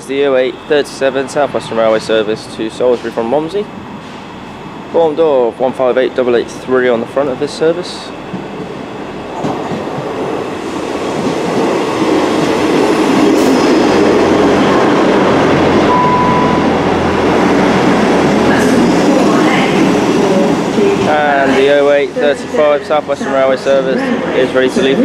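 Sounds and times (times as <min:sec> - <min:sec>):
diesel train passing: 0:00.0 - 0:25.0
short high tone: 0:15.9 - 0:17.1.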